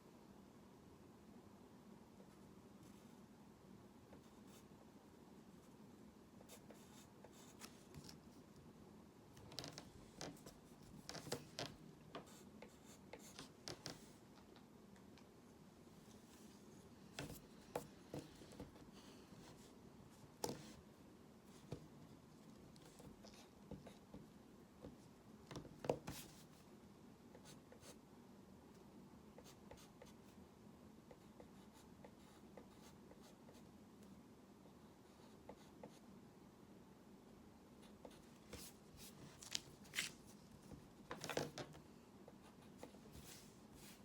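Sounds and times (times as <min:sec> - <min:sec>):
pencil strokes on paper: 0:42.4 - 0:44.0.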